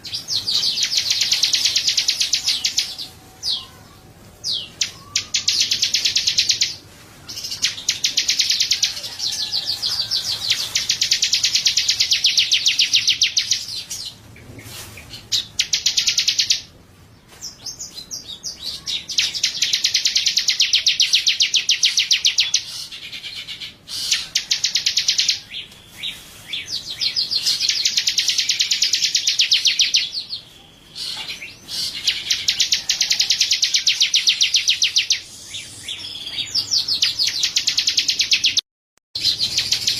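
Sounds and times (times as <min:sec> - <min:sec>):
songbird singing fast trills: 0:00.0 - 0:03.9, 0:04.5 - 0:06.8, 0:07.4 - 0:14.0, 0:18.3 - 0:38.6.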